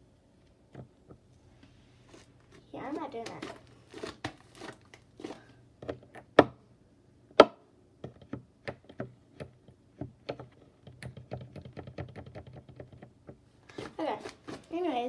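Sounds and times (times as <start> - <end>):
light irregular clicks and taps: 8.0 - 13.4.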